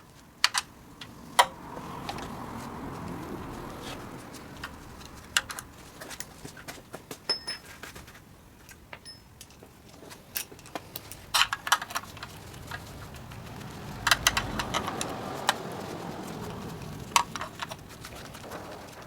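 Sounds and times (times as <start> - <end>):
metal tools clinking: 7.3 - 7.8
short metallic pings: 9.0 - 9.4.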